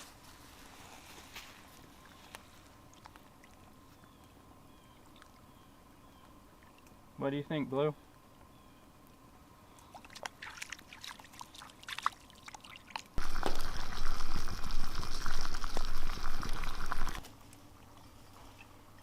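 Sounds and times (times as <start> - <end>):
water pouring and trickling: 9.9 - 17.2
faint crackles: 13.2 - 18.8.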